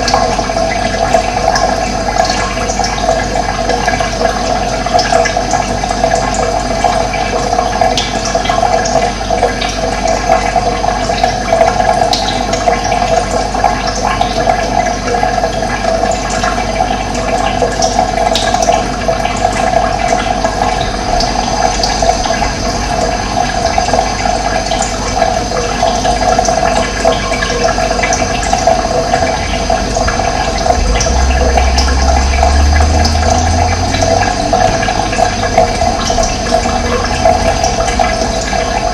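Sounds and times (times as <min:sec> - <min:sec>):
running water flowing: 0:00.0 - 0:38.9
low hum: 0:20.2 - 0:25.8, 0:27.8 - 0:38.9.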